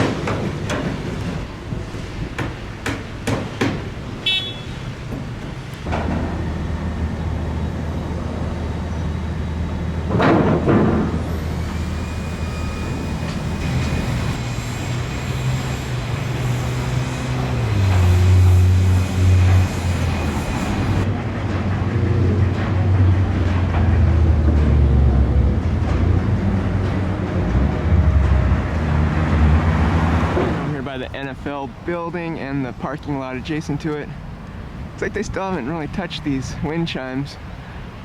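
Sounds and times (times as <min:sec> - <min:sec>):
hammering knocks: 0:02.4 - 0:04.0
vehicle passing: 0:12.5 - 0:31.0.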